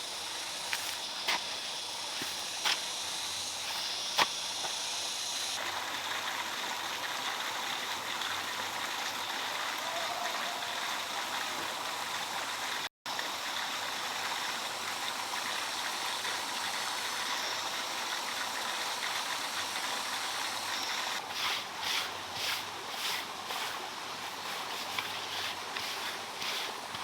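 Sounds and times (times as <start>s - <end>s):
running water rushing: 0.0s - 27.0s
sharp strokes: 21.3s - 27.0s.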